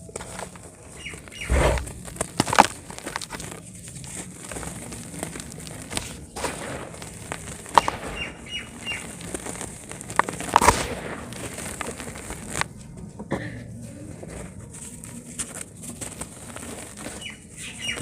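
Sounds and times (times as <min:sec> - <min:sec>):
cement chunks crunching by hand: 0:00.0 - 0:12.7.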